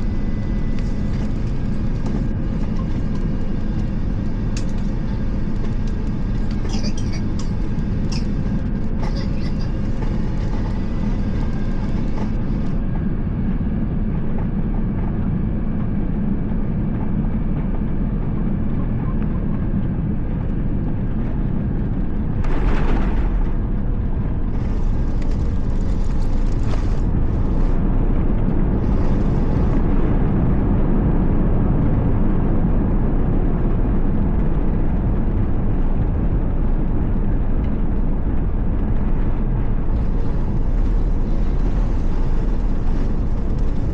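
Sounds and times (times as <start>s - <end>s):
airplane cabin rumble: 0.0s - 43.9s
sudden thump: 22.4s - 24.4s.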